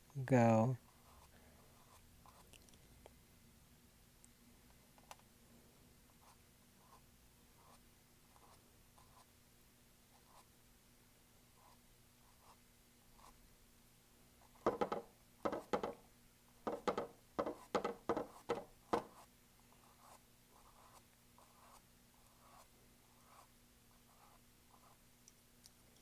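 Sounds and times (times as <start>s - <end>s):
paintbrush scratching on canvas: 16.8s - 25.0s.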